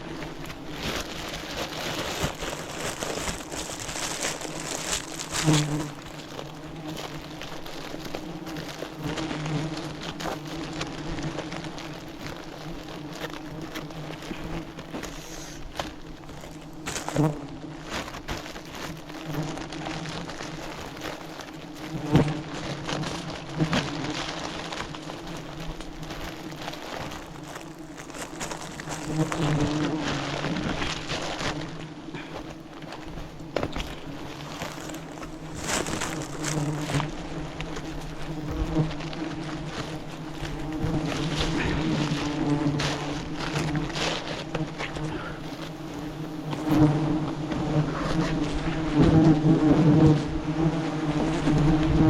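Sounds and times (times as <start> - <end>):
bees buzzing: 0.0 - 52.0
crackling and rustling: 0.0 - 52.0.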